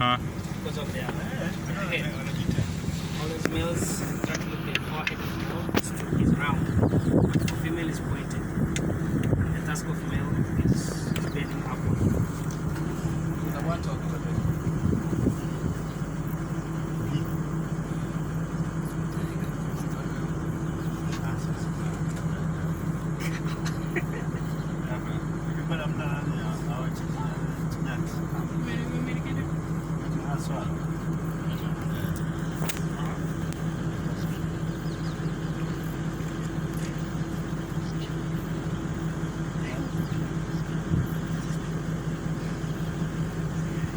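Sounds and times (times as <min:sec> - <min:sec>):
vehicle engine humming: 0:00.0 - 0:43.9.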